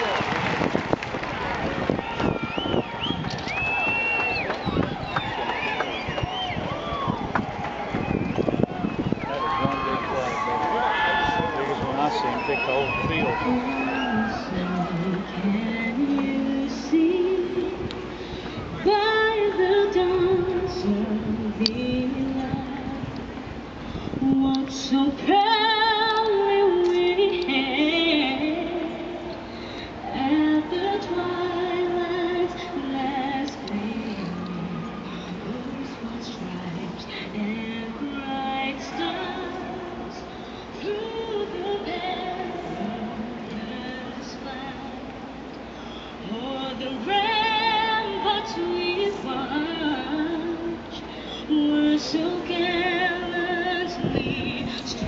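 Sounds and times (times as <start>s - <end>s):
woman singing: 13.4s - 18.0s, 18.7s - 23.3s, 24.2s - 29.4s, 30.0s - 45.4s, 46.2s - 55.0s.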